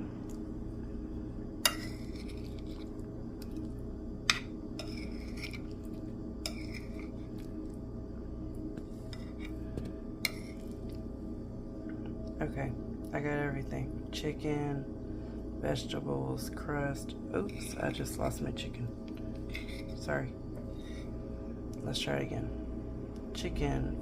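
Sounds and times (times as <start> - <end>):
low hum: 0.0 - 24.0
cutlery clinking and scraping a dish: 1.7 - 2.8, 6.5 - 7.1.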